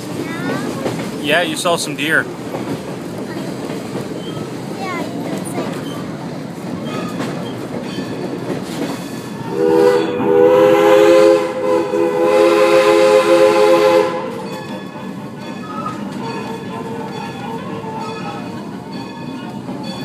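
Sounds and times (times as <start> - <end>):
rail and wheel noise: 0.0 - 20.0
locomotive whistle chord: 9.4 - 14.6.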